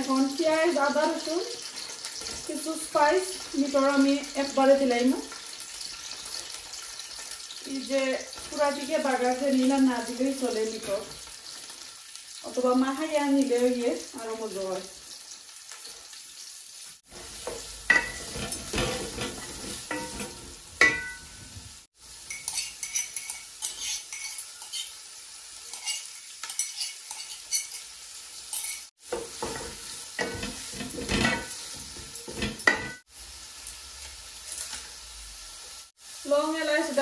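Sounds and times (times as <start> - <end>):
onions sizzling in oil: 0.0 - 37.0
spoon scraping a metal pot: 17.2 - 21.4, 22.3 - 25.0, 25.7 - 27.9.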